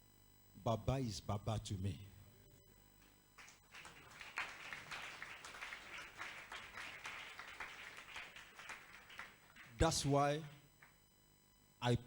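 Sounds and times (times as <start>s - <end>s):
congregation clapping: 3.4s - 11.0s.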